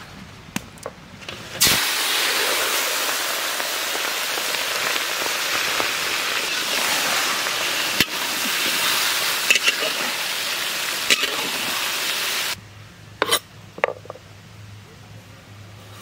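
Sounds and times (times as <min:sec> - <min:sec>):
prawns sizzling in hot oil: 0:01.6 - 0:12.6.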